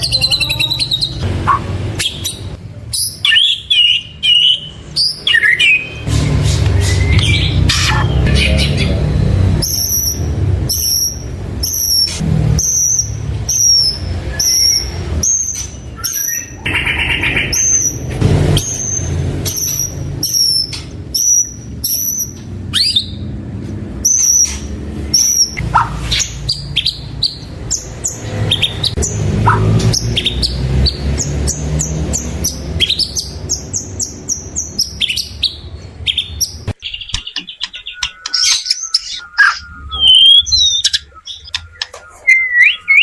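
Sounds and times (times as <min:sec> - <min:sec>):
shama singing high whistled notes: 0:37.8 - 0:43.0.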